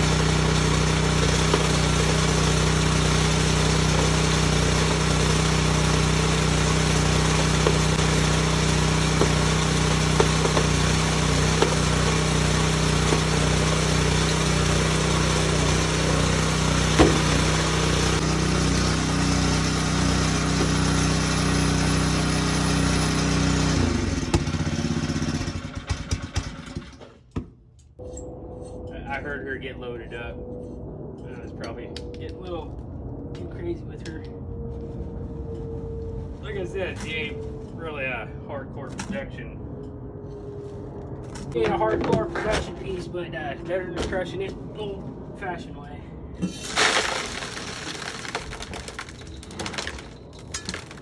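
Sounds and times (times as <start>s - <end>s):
rock crusher running: 0.0s - 27.2s, 46.4s - 51.0s.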